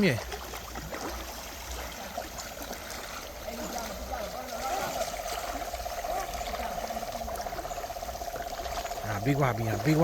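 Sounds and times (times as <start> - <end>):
shallow river water trickling: 0.0 - 10.0.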